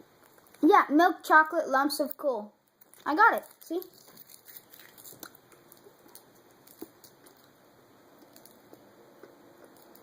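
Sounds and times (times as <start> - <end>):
faint chewing of crunchy candy: 2.6 - 10.0.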